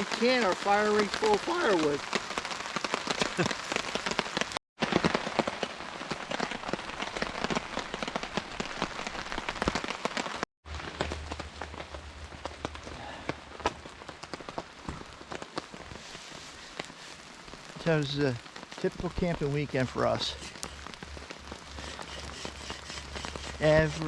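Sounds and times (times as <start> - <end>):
raindrops hitting close by: 0.0 - 24.0
steady rain falling: 0.0 - 24.0.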